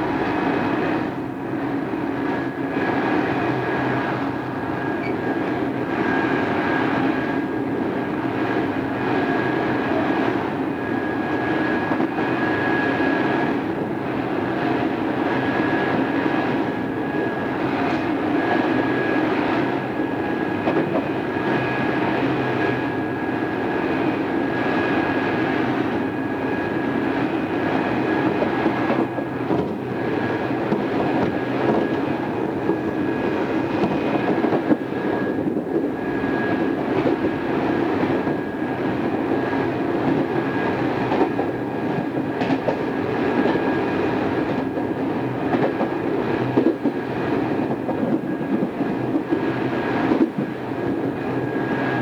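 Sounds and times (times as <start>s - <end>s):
electric train rumbling: 0.0s - 52.0s.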